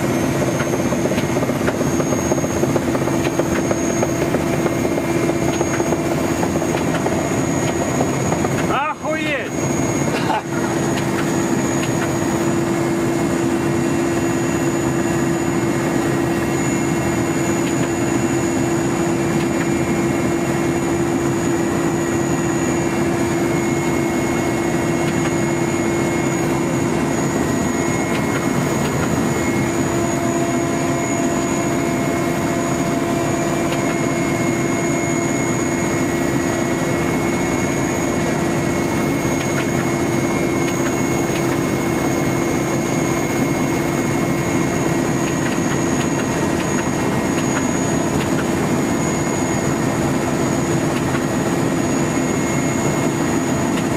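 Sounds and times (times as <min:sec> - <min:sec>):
helicopter engine and rotor drone: 0:00.0 - 0:53.9.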